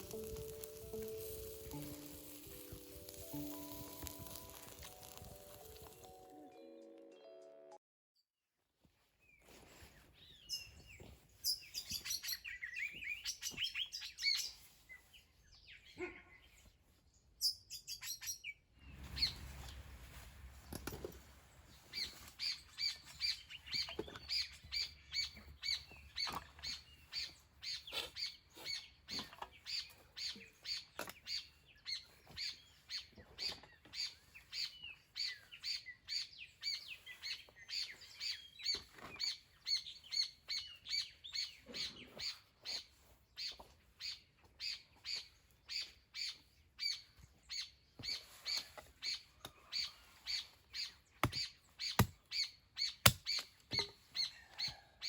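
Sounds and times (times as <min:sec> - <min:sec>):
bird chirping: 0:10.2 - 0:16.7, 0:21.6 - 0:55.0
faint birds chirping: 0:21.0 - 0:55.0.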